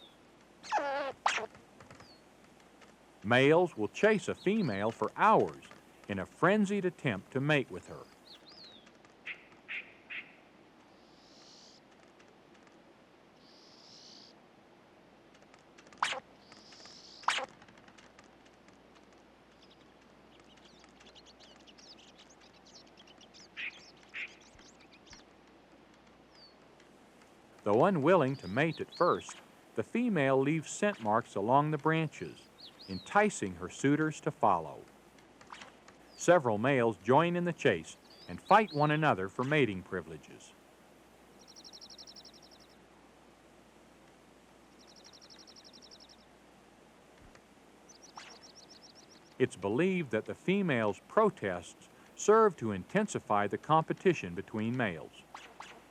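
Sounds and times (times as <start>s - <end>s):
squirrel lower calls: 0.0s - 2.2s, 3.3s - 11.9s, 15.9s - 17.7s, 19.3s - 25.4s, 27.6s - 40.4s, 47.8s - 50.2s
squirrels chattering squeaks: 0.0s - 2.2s
songbird trills: 0.0s - 2.3s, 3.2s - 11.9s, 13.4s - 14.4s, 15.9s - 17.6s, 19.5s - 25.4s, 27.6s - 40.6s, 41.3s - 42.8s, 44.7s - 46.3s, 47.8s - 55.9s
woodland background hiss: 0.0s - 55.9s.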